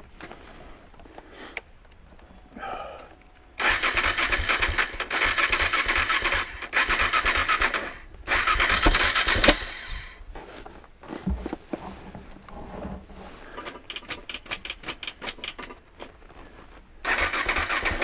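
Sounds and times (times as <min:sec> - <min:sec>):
engine starter cranking: 0:03.6 - 0:10.1, 0:13.6 - 0:15.8, 0:17.0 - 0:18.0.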